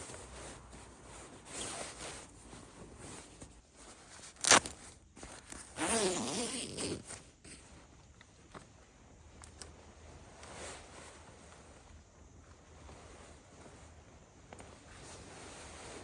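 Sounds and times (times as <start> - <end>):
zipper being pulled: 4.4 - 4.7, 5.5 - 7.6.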